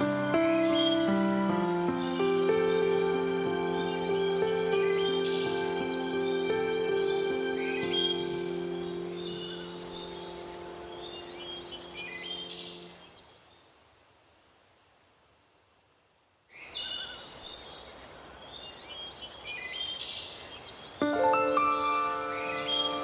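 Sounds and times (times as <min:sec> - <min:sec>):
soft background music: 0:00.0 - 0:13.0, 0:21.0 - 0:23.0
songbirds chirping: 0:00.0 - 0:13.8, 0:16.5 - 0:23.0.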